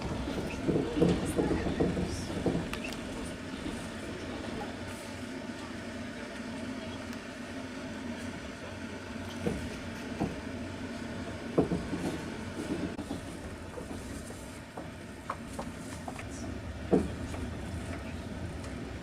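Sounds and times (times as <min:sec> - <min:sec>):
train carriage rumbling on rails: 0:00.0 - 0:19.0.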